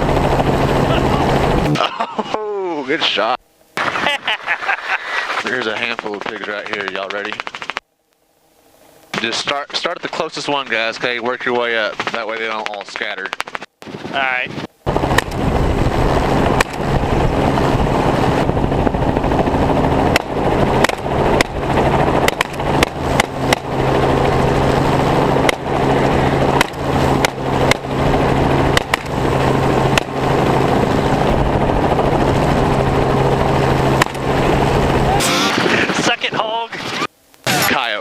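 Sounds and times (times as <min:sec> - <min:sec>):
helicopter engine and rotor drone: 0:00.0 - 0:02.1, 0:03.3 - 0:07.8, 0:08.6 - 0:38.0
rifle shots: 0:22.2 - 0:23.7.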